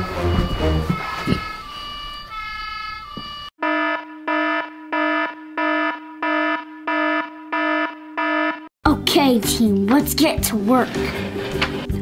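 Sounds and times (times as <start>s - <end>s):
music: 0.0s - 1.7s, 8.8s - 12.0s
fire alarm buzzer pulsing: 0.0s - 8.7s.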